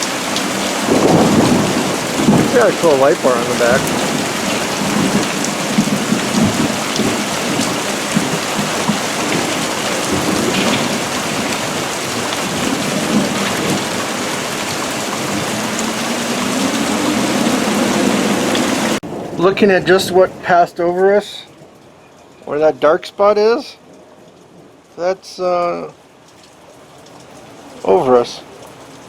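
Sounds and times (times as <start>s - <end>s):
thunder rumbling: 0.0s - 20.9s
heavy rain falling: 0.0s - 29.0s
low hum rising in pitch: 15.4s - 19.0s.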